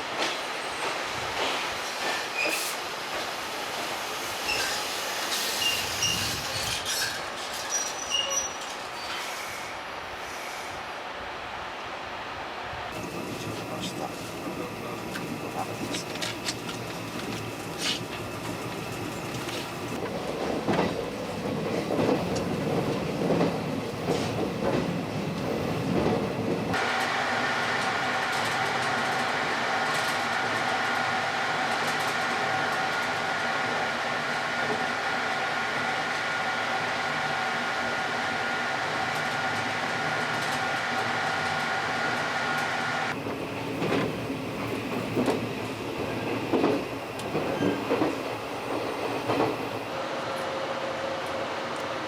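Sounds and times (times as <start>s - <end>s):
train running on rails: 0.0s - 52.0s
train wheels squealing: 1.8s - 2.8s, 4.2s - 10.8s, 47.4s - 48.0s.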